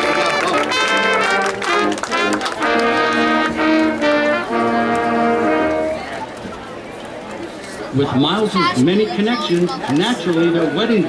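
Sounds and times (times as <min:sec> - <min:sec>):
brass section playing chords: 0:00.0 - 0:06.2.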